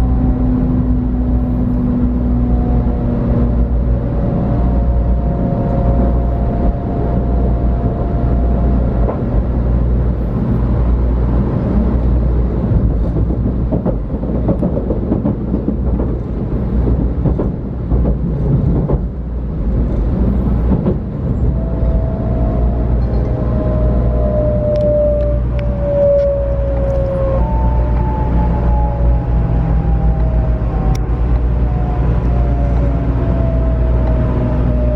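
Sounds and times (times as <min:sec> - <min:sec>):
train running rumble: 0:00.0 - 0:34.9
inverter whine: 0:21.4 - 0:34.9.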